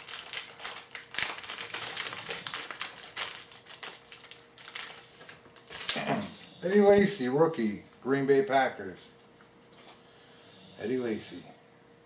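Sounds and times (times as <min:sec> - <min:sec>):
card pack crinkling: 0:00.0 - 0:06.0.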